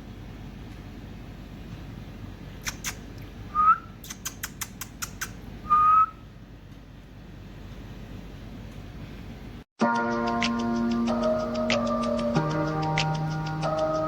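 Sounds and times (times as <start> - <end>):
steady low hum: 0.0 - 9.7
short whistled notes: 3.5 - 4.0, 5.7 - 6.2
sharp clicks: 4.0 - 5.4.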